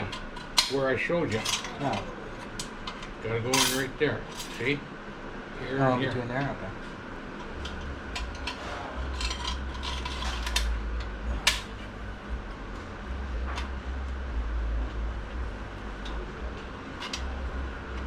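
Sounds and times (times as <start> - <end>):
low handling rumble: 4.8 - 18.0.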